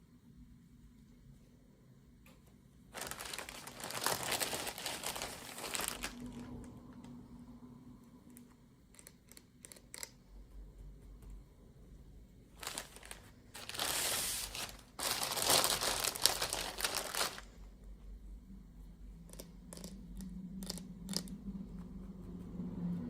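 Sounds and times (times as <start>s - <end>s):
packaging crinkled and torn: 2.9s - 6.8s, 12.6s - 17.6s.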